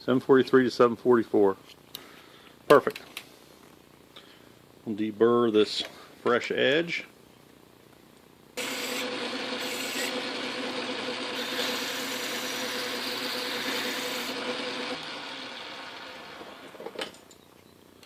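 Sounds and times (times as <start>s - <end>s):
metal lathe humming and whining: 8.6s - 16.8s.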